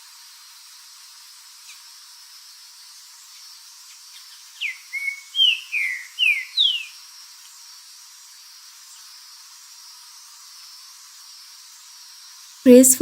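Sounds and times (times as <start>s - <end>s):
faint bird chirps: 4.2s - 7.0s
bird whistling: 5.0s - 6.9s.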